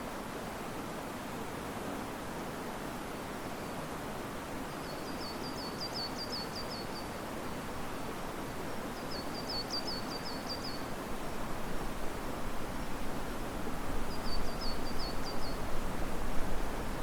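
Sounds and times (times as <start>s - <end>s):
river water rushing: 0.0s - 17.0s
wind in trees: 0.0s - 17.0s
small bird singing: 4.8s - 7.2s, 9.0s - 10.9s, 14.1s - 15.6s.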